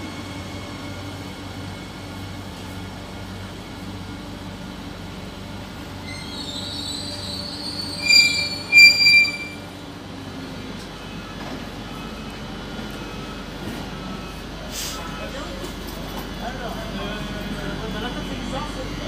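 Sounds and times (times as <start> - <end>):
train running hum: 0.0 - 19.0
train wheels and brakes squealing: 5.9 - 9.9.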